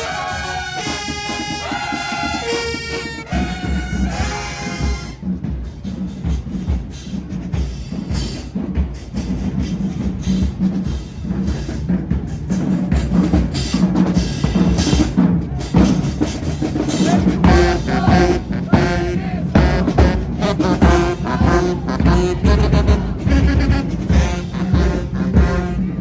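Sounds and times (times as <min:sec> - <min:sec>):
horns playing melody: 0:00.0 - 0:05.4, 0:16.7 - 0:26.0
drumline beat with bass drum: 0:00.0 - 0:26.0.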